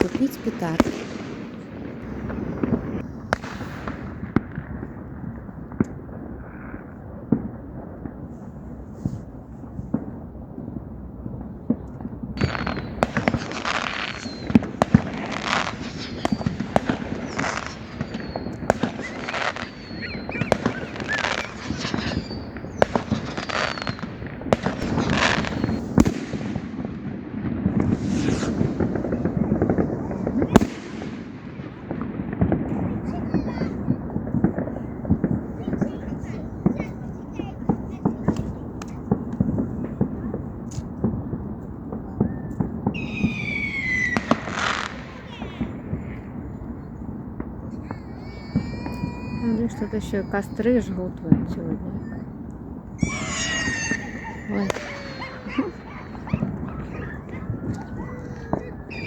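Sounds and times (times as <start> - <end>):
fireworks bangs: 0.0 - 59.0
fireworks crackling: 0.0 - 59.0
falling whistles: 12.4 - 24.1, 24.8 - 26.0, 27.8 - 30.6, 42.2 - 45.6, 47.8 - 50.9, 53.0 - 59.0.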